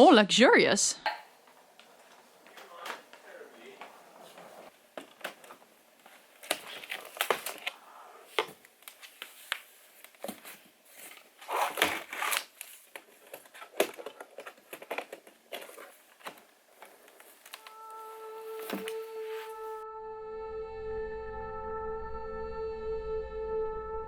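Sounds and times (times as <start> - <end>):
rustling and crinkling: 1.4 - 19.6.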